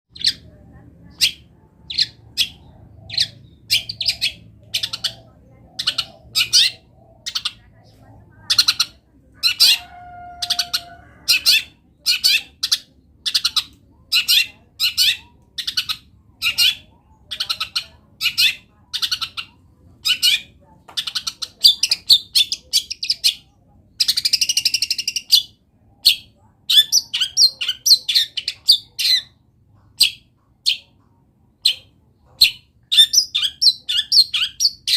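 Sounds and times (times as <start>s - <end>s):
harsh rasping bird call: 8.5s - 13.4s.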